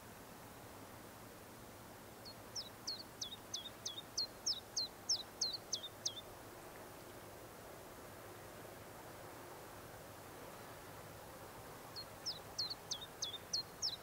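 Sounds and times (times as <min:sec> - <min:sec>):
faint steady hiss: 0:00.0 - 0:14.0
songbird singing high notes: 0:12.0 - 0:14.0.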